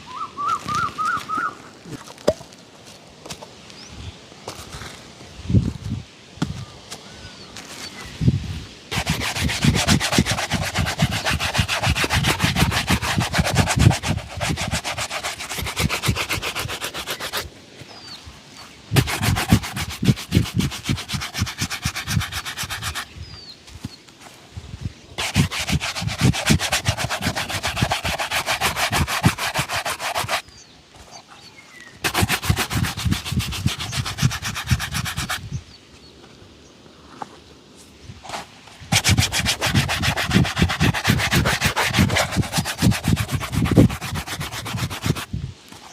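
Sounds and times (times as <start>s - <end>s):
leather shoe being buffed: 8.9s - 17.5s, 19.0s - 23.1s, 25.2s - 30.5s, 32.0s - 35.5s, 38.9s - 45.3s.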